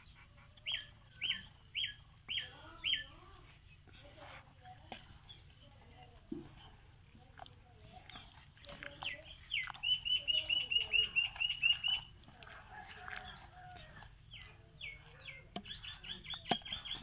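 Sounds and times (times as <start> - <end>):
bird chirping: 0.0 - 3.9, 7.9 - 12.1, 13.2 - 17.0.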